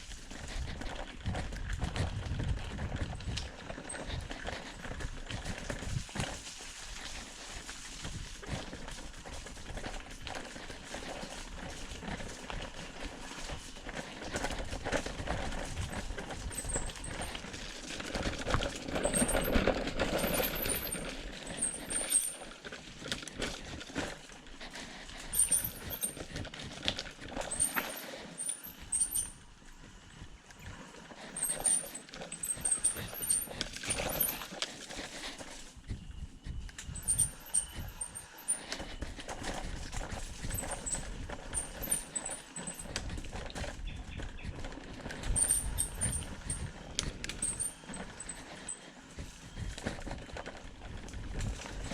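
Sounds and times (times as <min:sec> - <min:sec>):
footsteps on a trail: 0:00.0 - 0:51.9
rustling: 0:03.7 - 0:29.4.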